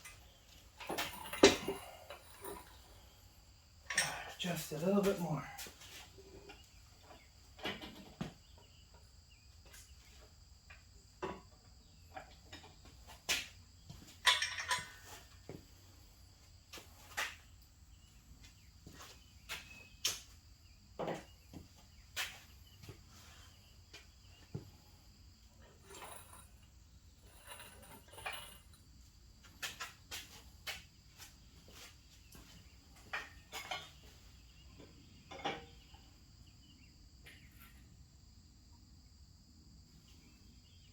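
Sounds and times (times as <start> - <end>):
metal tools clinking: 0.0 - 3.0, 3.9 - 5.3, 14.2 - 15.2, 25.7 - 28.8, 33.1 - 34.0
crickets chirping: 0.0 - 40.9.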